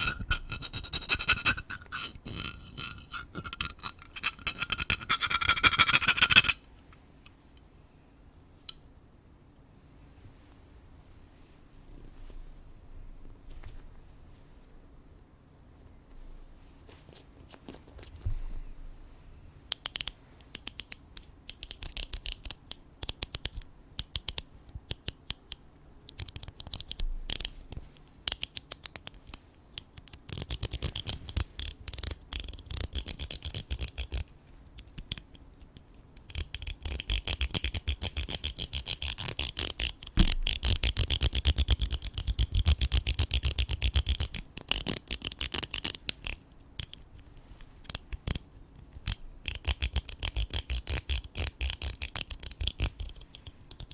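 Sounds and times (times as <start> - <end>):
dense rapid scratching: 0.0 - 6.6
crickets chirring: 0.0 - 53.9
sharp clicks: 34.8 - 53.9.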